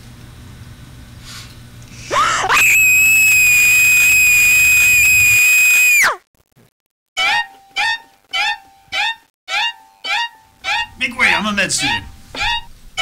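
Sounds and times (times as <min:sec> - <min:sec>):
shrill high-pitched scream: 0:02.2 - 0:06.2.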